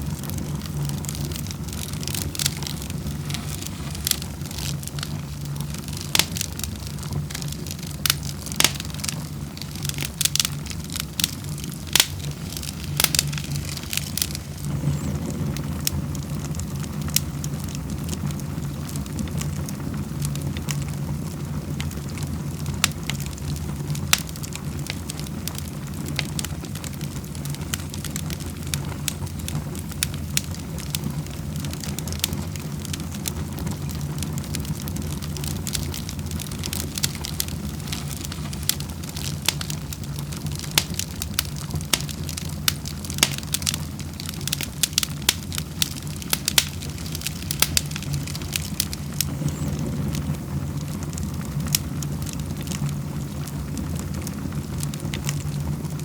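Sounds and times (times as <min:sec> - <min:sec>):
wood fire crackling: 0:00.0 - 0:56.0
low rumble: 0:11.2 - 0:17.1.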